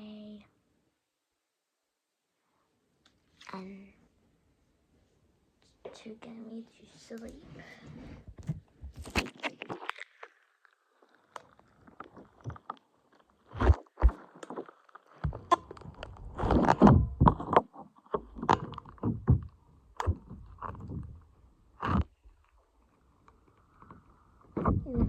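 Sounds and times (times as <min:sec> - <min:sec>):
knocks and thumps: 0:08.2 - 0:09.3, 0:15.2 - 0:21.2, 0:24.6 - 0:25.0.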